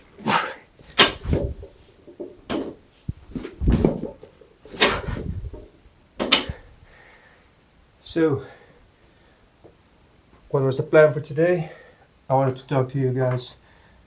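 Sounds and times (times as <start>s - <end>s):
person breathing hard: 6.4s - 7.6s, 11.6s - 12.1s, 13.6s - 14.0s.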